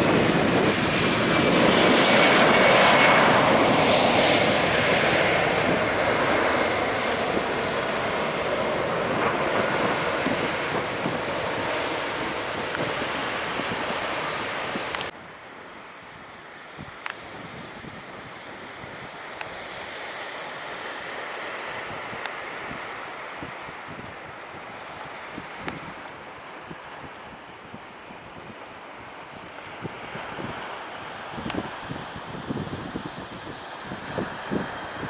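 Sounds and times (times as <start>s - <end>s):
wind on the microphone: 0.0s - 15.1s, 16.0s - 35.0s
jet airliner engine noise: 0.0s - 35.0s
waves on the beach: 0.0s - 35.0s.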